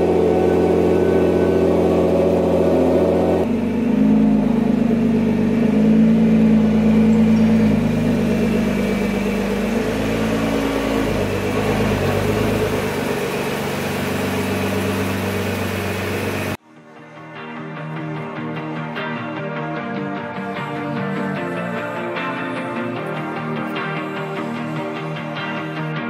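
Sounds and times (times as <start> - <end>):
car engine running at low revs: 0.0 - 16.6.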